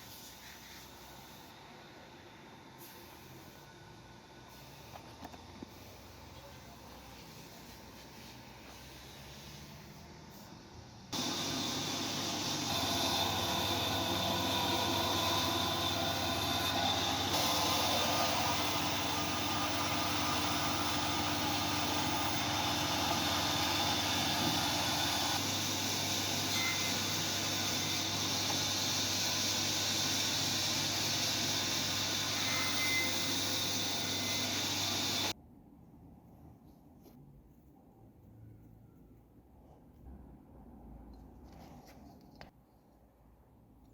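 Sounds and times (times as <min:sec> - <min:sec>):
power tool whining: 0:11.2 - 0:35.3.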